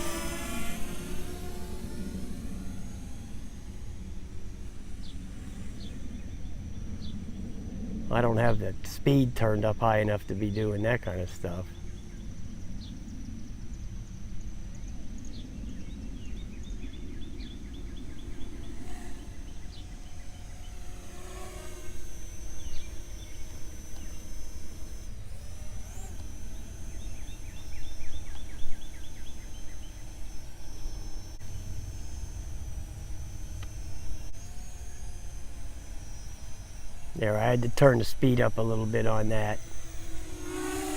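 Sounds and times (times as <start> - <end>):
quadcopter propellers whining: 0.0 - 40.9.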